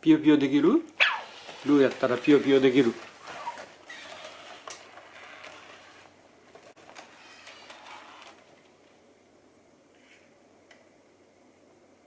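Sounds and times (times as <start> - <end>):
robot joint motors whirring: 1.0 - 6.1, 7.0 - 8.4.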